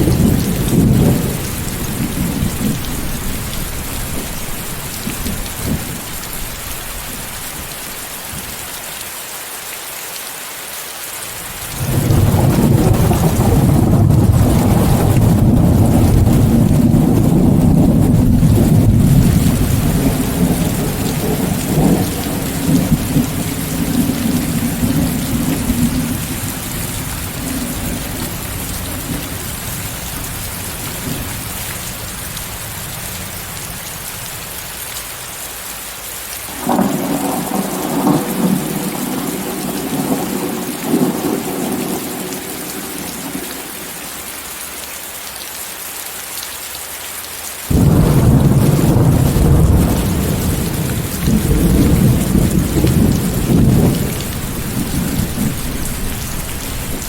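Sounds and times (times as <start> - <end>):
rolling thunder: 0.0 - 6.7, 11.8 - 31.6, 36.5 - 43.4, 47.7 - 57.0
steady rain: 0.0 - 57.0.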